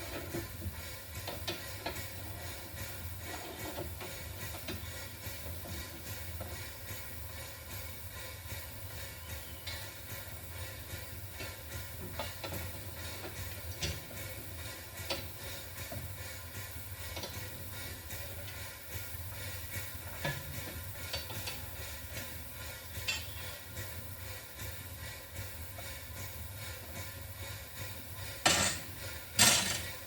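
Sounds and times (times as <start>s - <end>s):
steam locomotive rumble and hiss: 0.0s - 30.0s
metallic knocks and scrapes: 28.4s - 29.9s.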